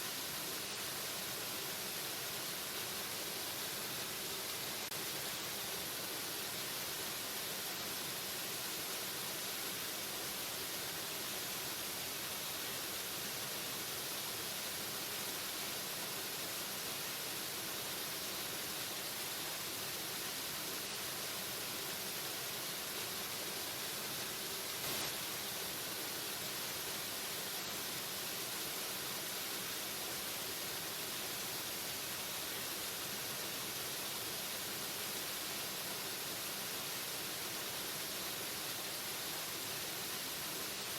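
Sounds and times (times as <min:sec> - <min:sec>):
waterfall rushing: 0:24.7 - 0:25.6.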